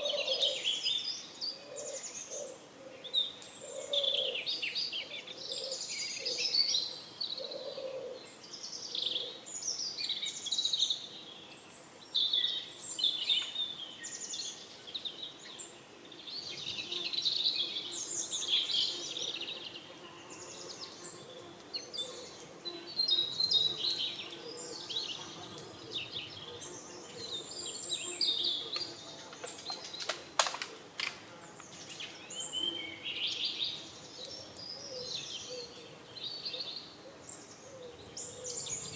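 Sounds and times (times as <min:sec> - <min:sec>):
small birds chirping: 0:00.0 - 0:30.3, 0:31.6 - 0:38.9.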